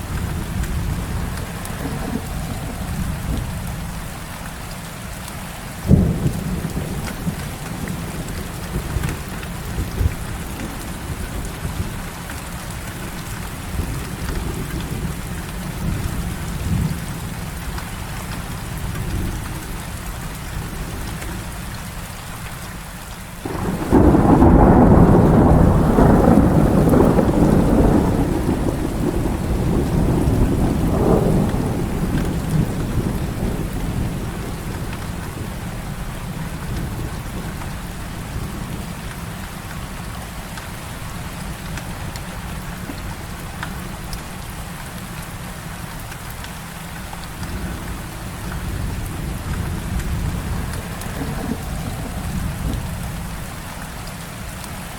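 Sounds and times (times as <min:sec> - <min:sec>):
rolling thunder: 0:00.0 - 0:04.5, 0:05.8 - 0:12.1, 0:23.4 - 0:39.0, 0:47.2 - 0:53.8
heavy rain: 0:00.0 - 0:54.9
thunder crack: 0:23.4 - 0:35.6, 0:47.3 - 0:53.5.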